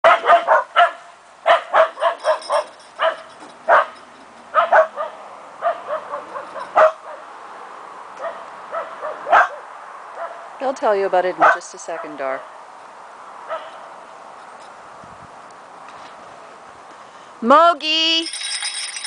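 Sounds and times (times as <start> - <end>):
dog barking in sharp yips: 0.0 - 7.2, 8.2 - 10.5, 13.5 - 13.9.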